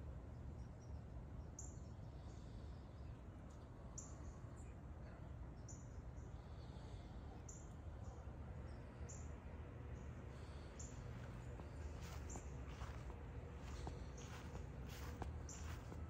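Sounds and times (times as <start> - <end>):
low outdoor rumble: 0.0 - 16.0
small bird chirping: 13.6 - 16.0.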